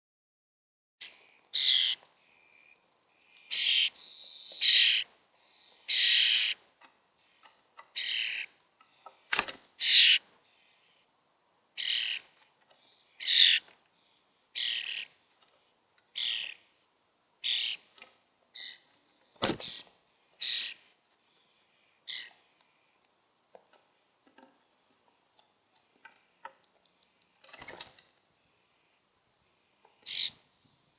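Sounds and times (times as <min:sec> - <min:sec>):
baby starlings raspy calls: 0:01.0 - 0:06.6, 0:07.2 - 0:11.0, 0:11.8 - 0:13.7, 0:14.6 - 0:15.2, 0:16.1 - 0:16.8, 0:17.4 - 0:17.9, 0:18.5 - 0:22.6, 0:29.9 - 0:30.4.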